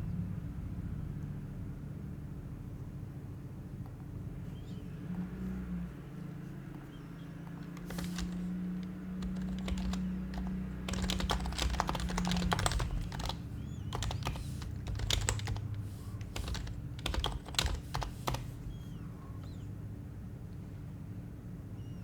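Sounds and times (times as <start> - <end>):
soft muted keyboard typing: 6.7 - 19.6.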